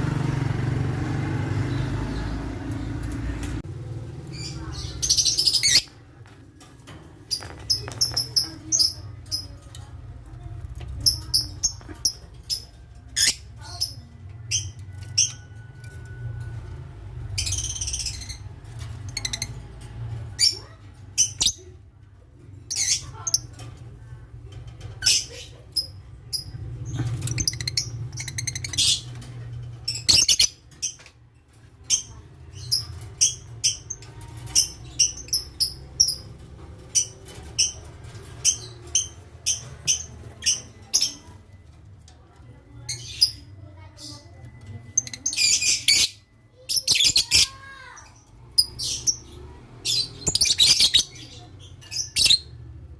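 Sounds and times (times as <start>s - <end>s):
lovebirds chirping: 1.4s - 6.6s, 7.2s - 16.0s, 24.9s - 31.1s, 31.8s - 52.8s.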